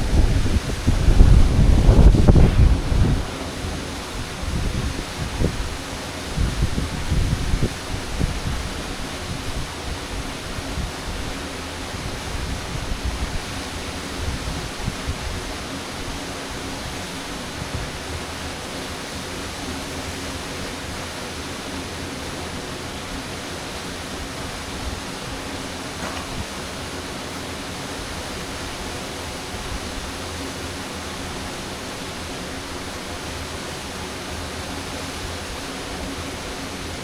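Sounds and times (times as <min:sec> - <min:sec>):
low rumbling gusts: 0:00.0 - 0:15.6, 0:23.2 - 0:30.6
waterfall roaring: 0:00.0 - 0:37.0.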